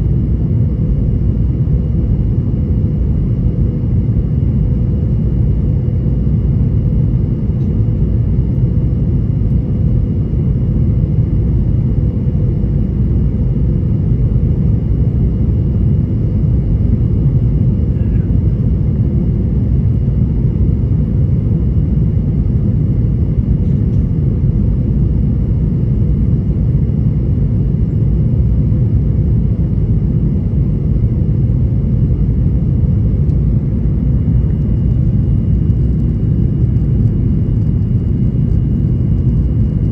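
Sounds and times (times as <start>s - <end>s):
airliner cabin rumble: 0.0s - 39.9s
faint steady hum: 0.0s - 39.9s.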